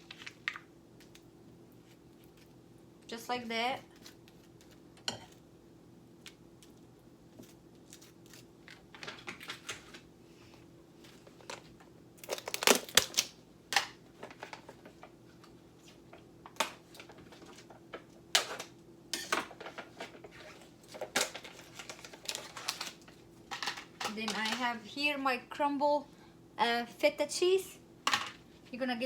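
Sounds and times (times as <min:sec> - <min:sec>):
kitchen utensils clicking and tapping: 0:23.5 - 0:24.6.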